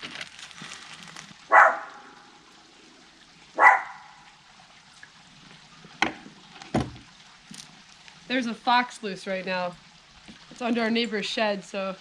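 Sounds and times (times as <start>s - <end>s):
dog barking: 1.5s - 2.1s, 3.6s - 4.2s.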